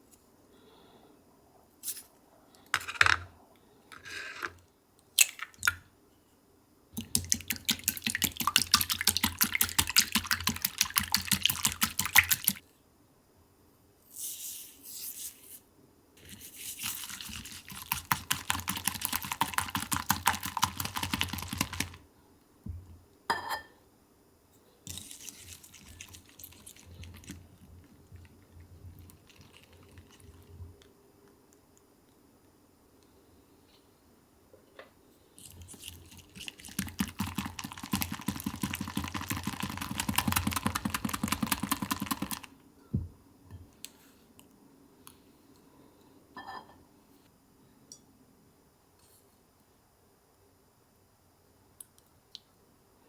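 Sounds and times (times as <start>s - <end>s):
whisk beating in a bowl: 7.0s - 12.6s, 16.3s - 22.0s, 35.8s - 42.5s.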